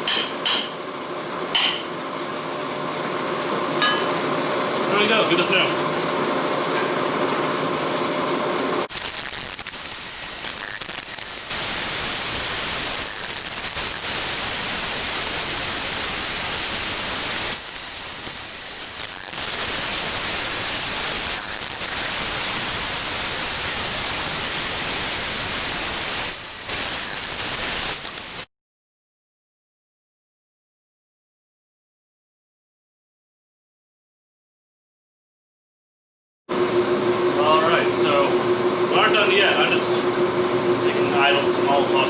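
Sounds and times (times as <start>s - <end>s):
loud steady hissing: 8.9s - 28.5s.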